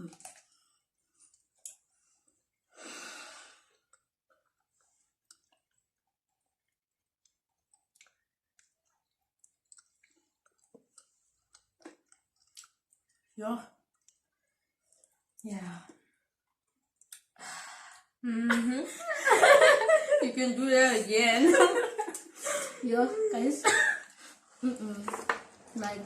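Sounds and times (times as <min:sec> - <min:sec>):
breathy exhale: 0:02.8 - 0:03.7
mouth clicks of chewing: 0:07.2 - 0:13.3, 0:16.9 - 0:17.4.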